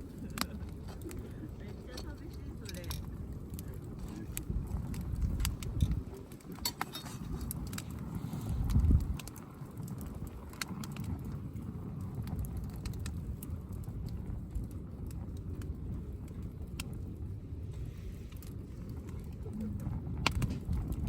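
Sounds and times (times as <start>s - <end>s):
campfire crackling and popping: 0.0s - 21.0s
low rumble: 11.0s - 21.0s.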